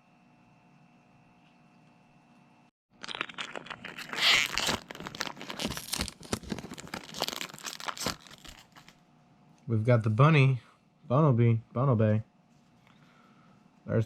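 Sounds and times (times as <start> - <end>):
foil wrapper tearing and crinkling: 3.0 - 9.0.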